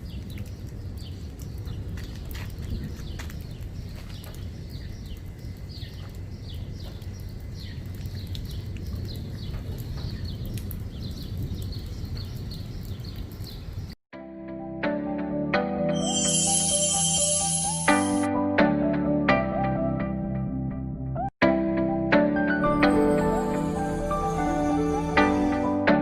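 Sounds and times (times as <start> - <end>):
birds chirping: 0.0 - 14.0
wind rumble on microphone: 0.0 - 14.0
music: 14.1 - 26.0.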